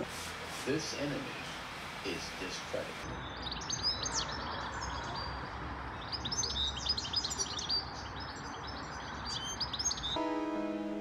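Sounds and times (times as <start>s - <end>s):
songbirds chirping: 0.7s - 11.0s.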